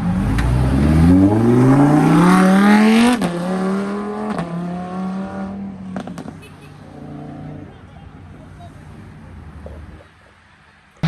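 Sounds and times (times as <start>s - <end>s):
car engine accelerating: 0.0s - 6.3s.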